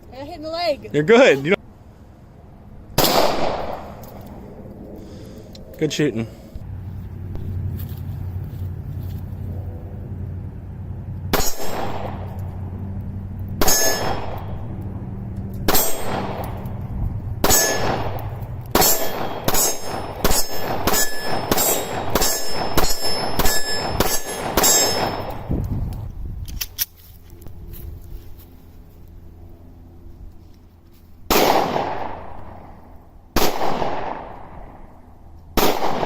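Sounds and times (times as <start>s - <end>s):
steel plate clanging: 13.6s - 14.2s, 15.7s - 16.3s, 17.4s - 18.0s, 18.8s - 25.4s
handgun shots: 31.3s - 32.4s.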